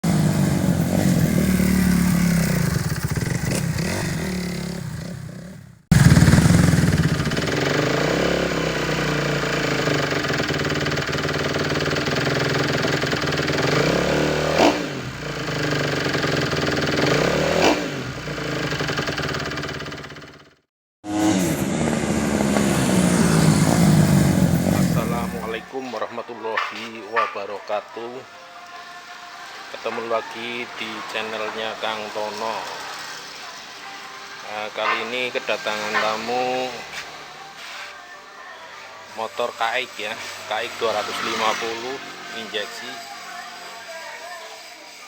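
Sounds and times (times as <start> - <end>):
dirt bike engines revving: 0.0 - 20.0, 21.1 - 26.0, 34.6 - 37.4, 39.2 - 43.0.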